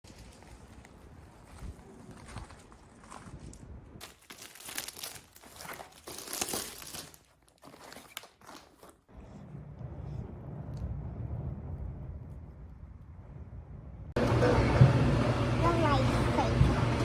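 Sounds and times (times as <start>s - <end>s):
crinkling and rustling: 0.0s - 9.4s
low steady rumble: 9.1s - 17.0s.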